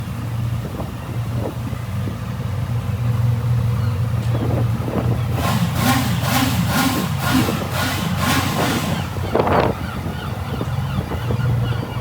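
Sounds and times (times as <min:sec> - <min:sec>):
throttle blips revving engine: 0:04.9 - 0:09.7.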